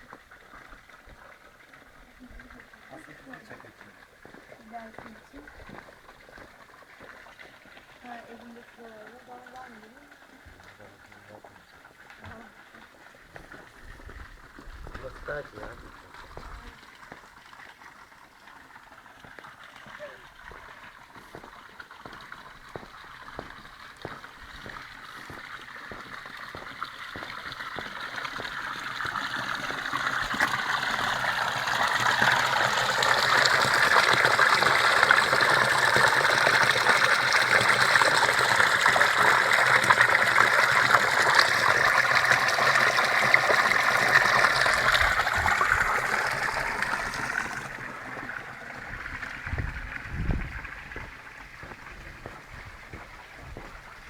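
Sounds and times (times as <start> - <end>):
rushing stream water: 0.0 - 54.0
low bumps: 47.0 - 54.0.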